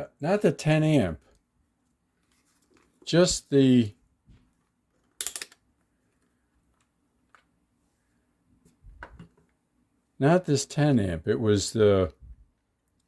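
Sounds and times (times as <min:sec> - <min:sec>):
small objects clicking: 0:05.0 - 0:05.6.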